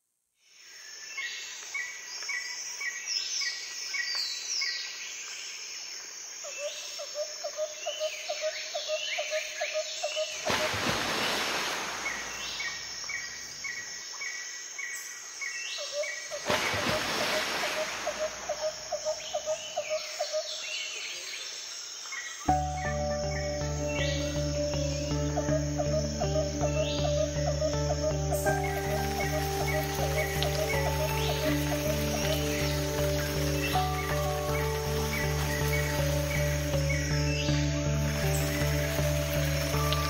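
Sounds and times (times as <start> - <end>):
birds calling: 15.8 - 21.3, 22.4 - 40.0.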